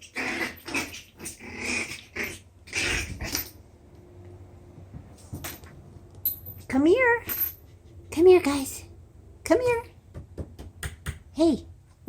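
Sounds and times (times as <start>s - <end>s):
puppies yapping and grumbling: 0.0s - 3.6s.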